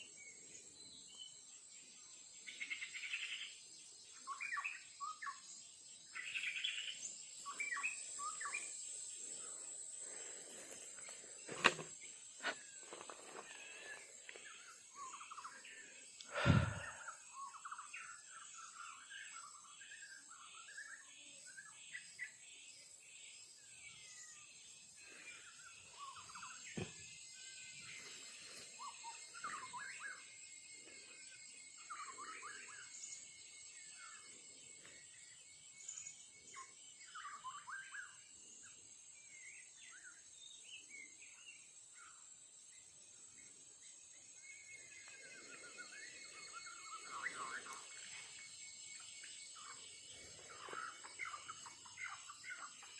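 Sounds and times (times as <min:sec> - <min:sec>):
high insect hum: 0:00.0 - 0:52.9
songbird chirping: 0:00.0 - 0:52.9
thump: 0:26.8 - 0:27.0.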